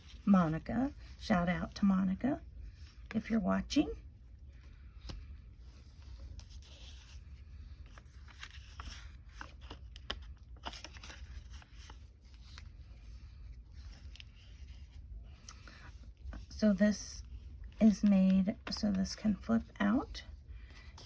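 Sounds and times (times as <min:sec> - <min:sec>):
paper pages rustling: 0:04.6 - 0:16.6, 0:17.2 - 0:21.0.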